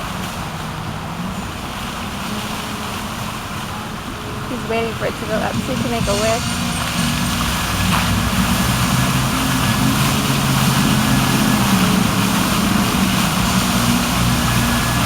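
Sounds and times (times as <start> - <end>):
water fountain rushing: 0.0 - 15.0
low hum: 4.2 - 15.0.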